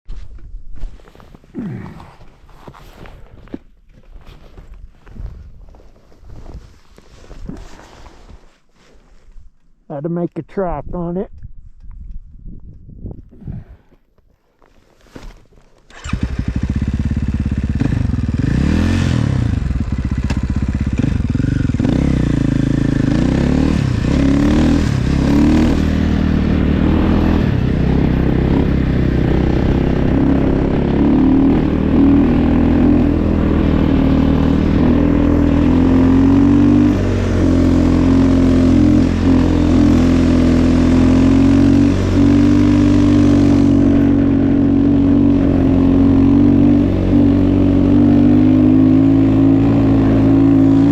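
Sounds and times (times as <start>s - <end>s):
snow bike engine revving: 15.9s - 50.9s.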